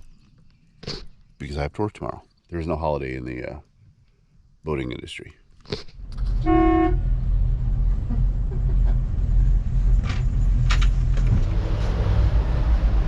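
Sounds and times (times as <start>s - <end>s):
boat engines rumbling: 6.1s - 13.0s.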